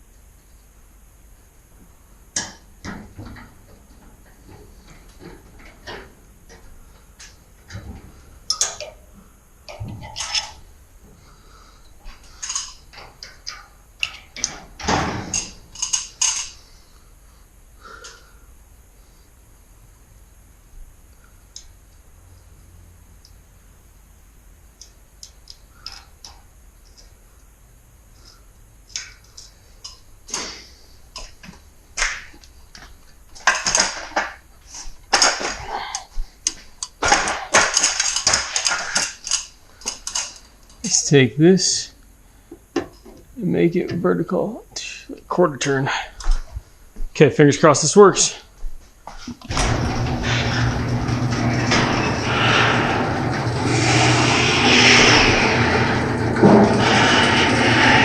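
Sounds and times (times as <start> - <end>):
clicks and clinks of hard objects: 35.1 - 40.8.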